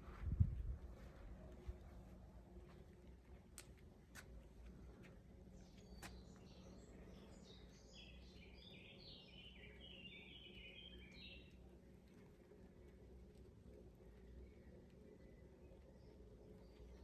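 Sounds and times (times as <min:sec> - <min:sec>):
low background hum: 0:00.0 - 0:17.0
songbird chirping: 0:05.4 - 0:12.3, 0:14.0 - 0:17.0.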